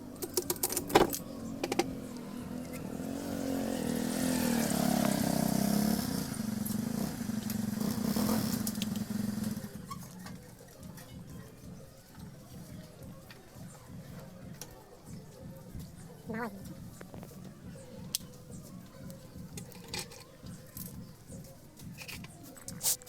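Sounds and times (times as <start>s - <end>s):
small motorcycle engine running: 0.0s - 10.4s.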